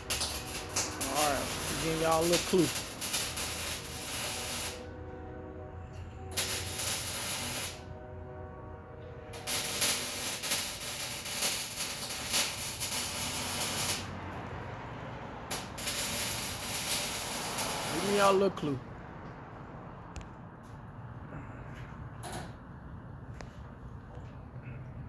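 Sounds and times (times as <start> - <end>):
harsh crackly hissing: 0.0 - 4.9, 6.3 - 7.8, 9.4 - 14.2, 15.5 - 18.7.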